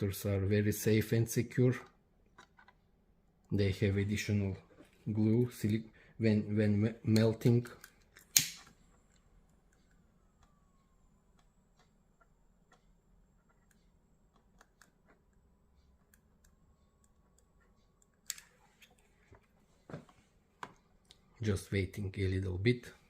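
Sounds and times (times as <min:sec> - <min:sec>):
sharp click: 0:08.3 - 0:08.7.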